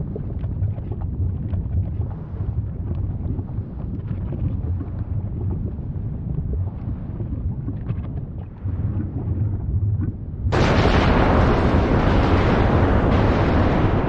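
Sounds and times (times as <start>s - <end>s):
faint crackles: 0.0s - 14.0s
volcano rumbling: 0.0s - 14.0s
loud rush of eruption blast: 10.5s - 14.0s.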